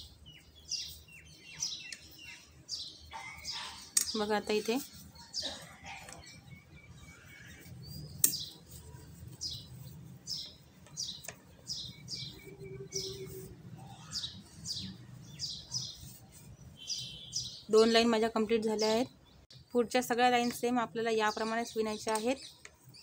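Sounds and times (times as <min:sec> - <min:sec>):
small bird chirping: 0:00.0 - 0:18.1.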